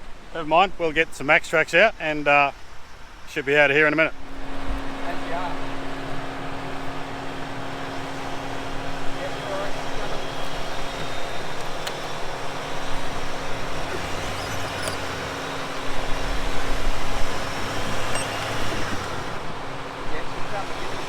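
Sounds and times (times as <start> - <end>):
engine idling: 4.4 - 21.0.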